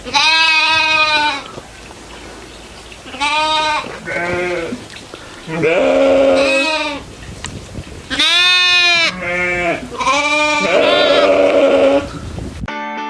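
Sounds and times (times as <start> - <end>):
goats bleating: 0.0 - 12.3.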